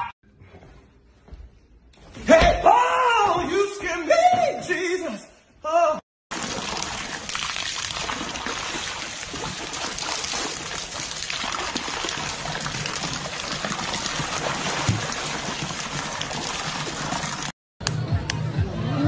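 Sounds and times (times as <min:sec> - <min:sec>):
bear splashing in tub: 0:06.3 - 0:17.5
water pouring into tub: 0:06.3 - 0:17.6.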